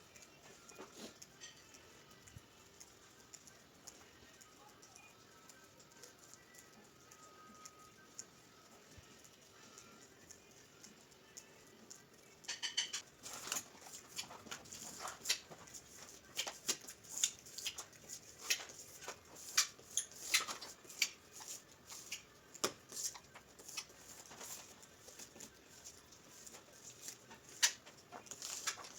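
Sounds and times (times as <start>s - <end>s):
hand tools clicking on tile: 11.9s - 28.9s.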